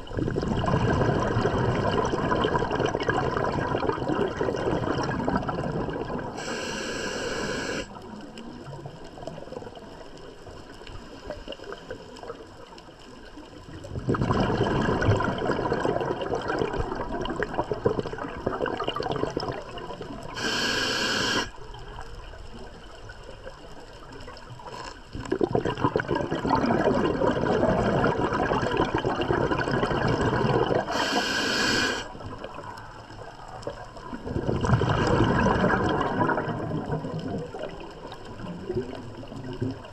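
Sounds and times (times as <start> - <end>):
bubbling exhaust underwater: 0.0 - 39.9
regulator hissing inhalations: 6.4 - 7.9, 20.4 - 21.5, 30.8 - 32.1.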